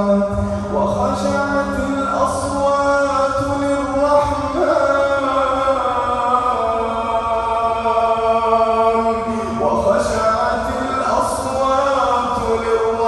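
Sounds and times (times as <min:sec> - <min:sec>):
man chanting melodic recitation: 0:00.0 - 0:13.0.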